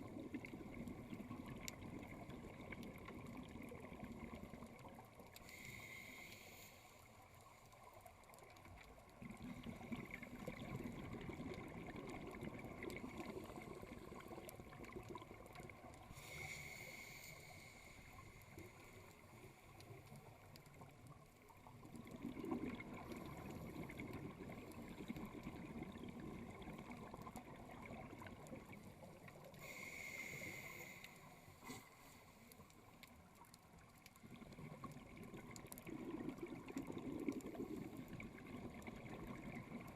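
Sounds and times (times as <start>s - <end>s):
exhaled bubbles rumbling: 0.0s - 5.2s, 8.5s - 16.1s, 19.9s - 29.6s, 33.3s - 39.9s
regulator inhale hiss: 5.4s - 7.5s, 16.0s - 19.8s, 29.4s - 32.6s.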